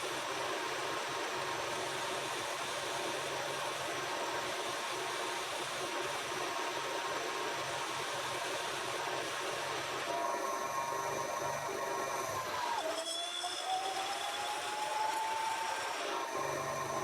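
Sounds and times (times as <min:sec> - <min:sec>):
machine tool running with hiss: 0:00.0 - 0:17.0.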